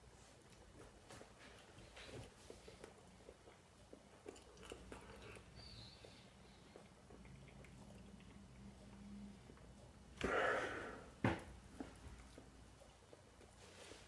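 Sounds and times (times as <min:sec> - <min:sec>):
breath through the nose: 0:10.2 - 0:11.2.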